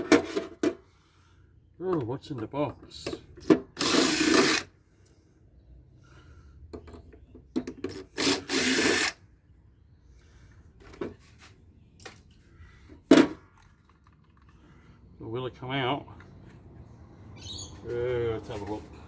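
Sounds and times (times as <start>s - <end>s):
power tool bursts: 3.7s - 4.7s, 8.0s - 9.2s.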